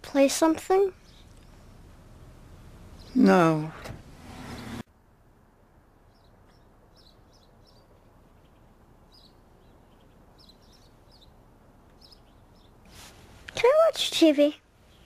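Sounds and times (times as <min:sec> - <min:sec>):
faint bird chirps: 0:00.9 - 0:01.8, 0:06.0 - 0:13.0.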